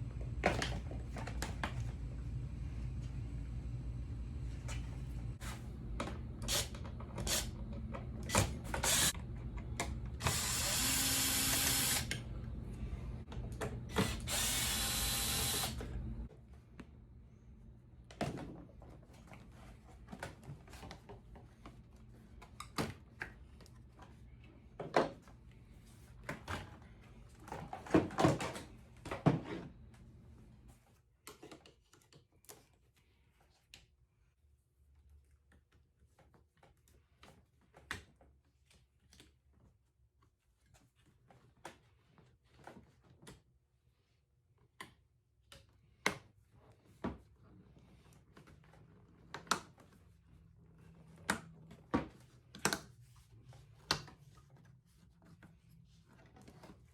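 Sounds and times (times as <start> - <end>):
low steady hum: 0.0 - 18.1
power tool running: 6.4 - 7.5, 8.2 - 9.2, 10.1 - 12.3, 13.9 - 16.1.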